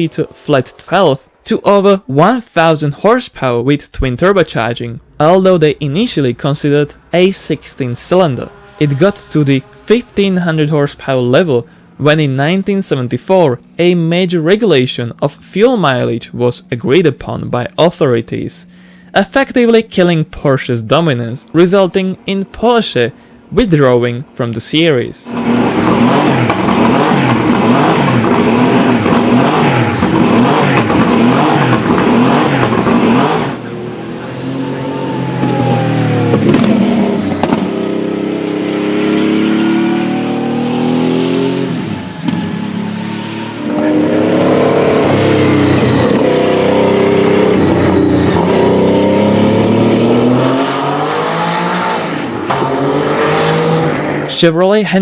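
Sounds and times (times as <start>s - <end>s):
racing engine running hard: 7.8s - 10.4s, 25.3s - 54.3s.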